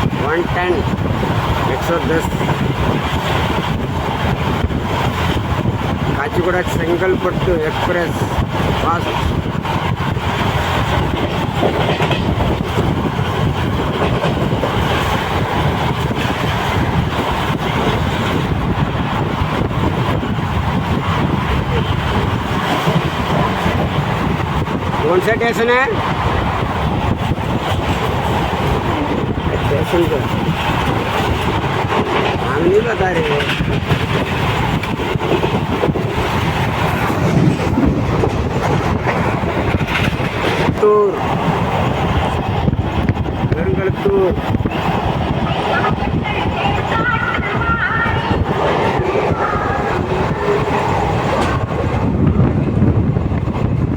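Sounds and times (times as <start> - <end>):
train rumbling on rails: 0.0 - 53.9
wheels clattering over rail joints: 8.1 - 43.6.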